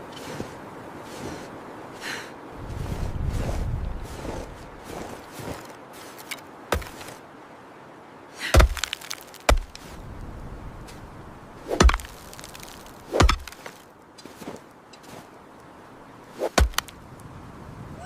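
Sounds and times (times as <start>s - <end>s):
axe chopping wood: 6.2s - 7.2s, 8.5s - 10.0s, 11.7s - 13.8s, 16.4s - 17.0s.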